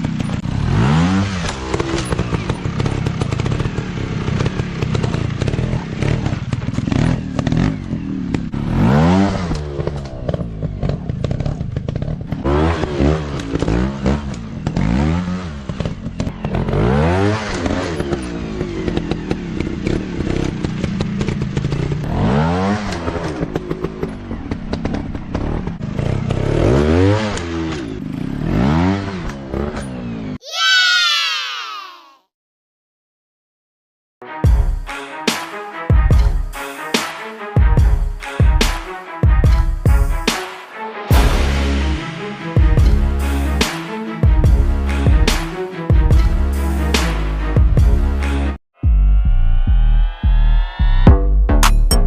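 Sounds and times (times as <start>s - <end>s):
dirt bike engines revving: 0.0s - 30.9s.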